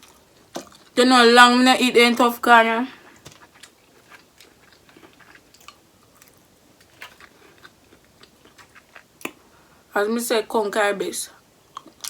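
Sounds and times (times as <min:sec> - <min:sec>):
person chewing: 0:00.0 - 0:01.0, 0:03.0 - 0:09.5, 0:11.7 - 0:12.0.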